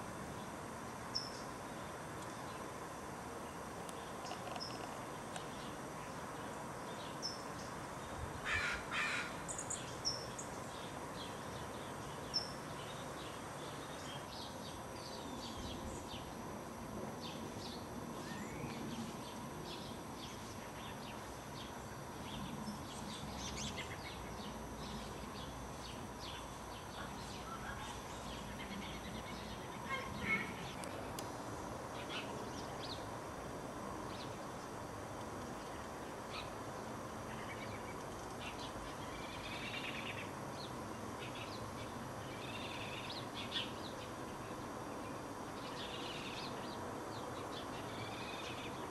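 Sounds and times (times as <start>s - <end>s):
harsh rasping bird calls: 8.4s - 9.8s.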